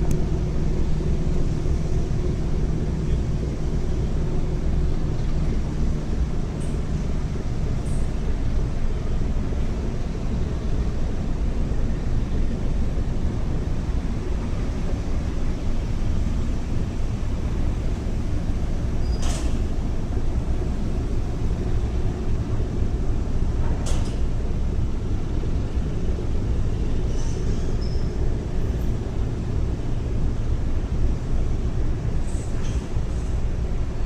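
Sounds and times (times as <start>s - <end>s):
ferry engines rumbling: 0.0s - 34.0s.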